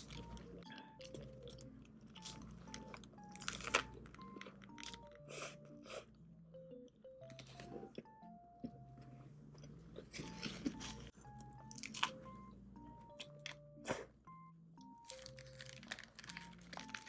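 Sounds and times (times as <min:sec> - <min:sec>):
crunchy chewing of fried food: 0:00.0 - 0:06.1, 0:07.2 - 0:12.2, 0:15.0 - 0:17.0
soft background music: 0:00.0 - 0:17.0.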